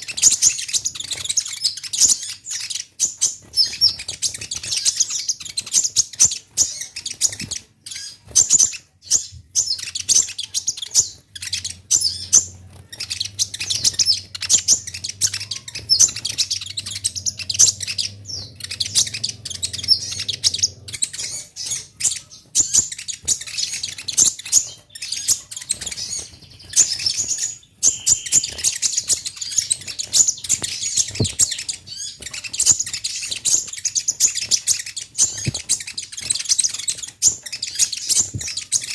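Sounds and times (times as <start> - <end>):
sunbird twittering: 0.0 - 38.9
faint low hum: 9.1 - 24.8.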